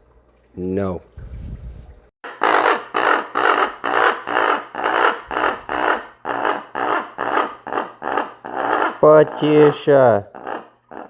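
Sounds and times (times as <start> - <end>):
raven rasping calls: 2.3 - 11.0.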